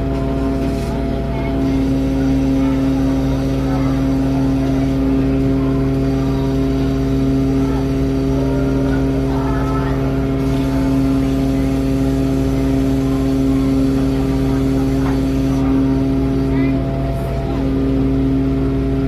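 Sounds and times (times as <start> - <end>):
faint voices: 0.0 - 19.0
ship engines humming: 0.0 - 19.0.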